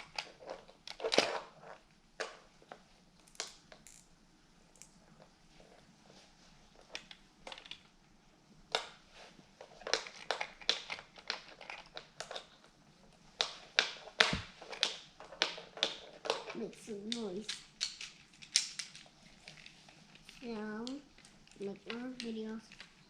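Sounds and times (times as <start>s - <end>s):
plastic toys clattering: 0.0s - 2.4s, 6.9s - 7.9s, 9.6s - 12.7s, 13.4s - 23.0s
heavy thump: 14.3s - 14.5s.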